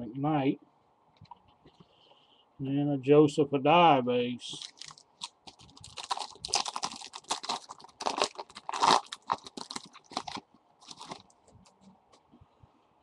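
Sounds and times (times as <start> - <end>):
card pack wrapper crinkling and tearing: 4.5 - 11.4.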